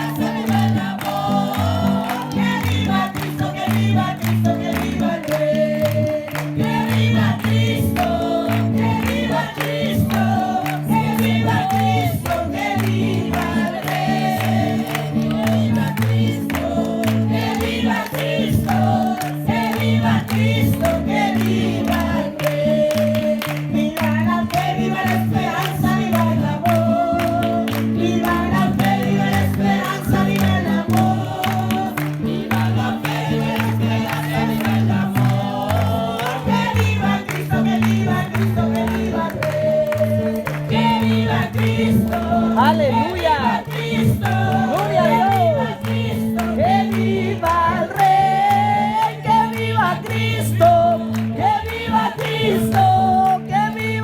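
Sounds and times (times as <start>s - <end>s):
group of voices singing: 0.0s - 54.0s.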